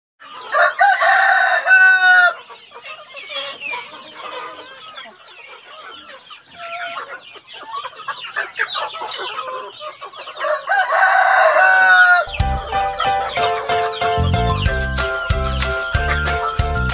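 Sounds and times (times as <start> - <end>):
chickens clucking: 0.2 - 16.9
rooster crowing: 0.4 - 2.4, 10.4 - 13.8.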